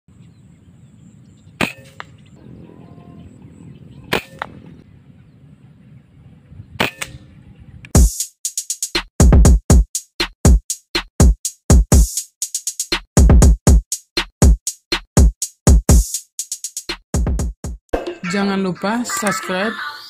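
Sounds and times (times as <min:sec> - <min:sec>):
faint outdoor background noise: 0:00.1 - 0:08.0
air rifle shots: 0:01.6 - 0:02.2, 0:04.1 - 0:04.8, 0:06.8 - 0:07.2
electronic music with drum beat: 0:08.0 - 0:18.4.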